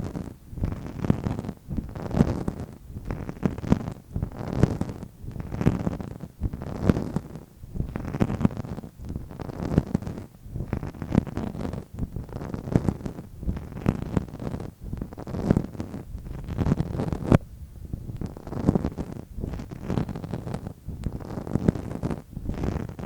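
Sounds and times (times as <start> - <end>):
soft tapping and rubbing: 0.0 - 23.0
muffled low thud: 6.4 - 6.7.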